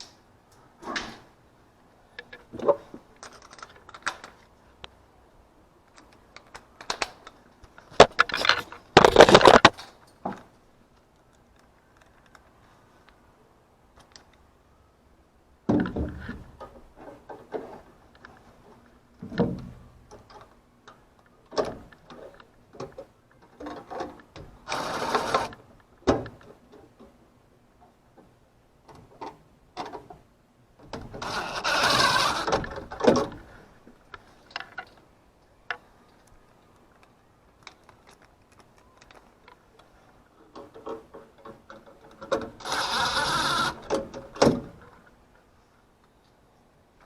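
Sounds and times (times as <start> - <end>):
handling clicks and knocks: 5.8 - 12.6, 35.7 - 42.6.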